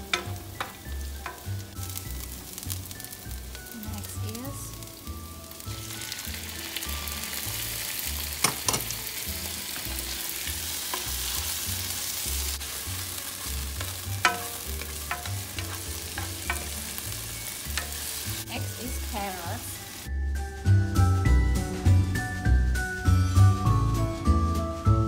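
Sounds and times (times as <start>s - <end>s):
spoon knocking and scraping pan: 0.0s - 1.7s, 8.3s - 9.0s, 10.8s - 11.5s, 13.4s - 18.4s
tomatoes sizzling in hot oil: 0.0s - 25.0s.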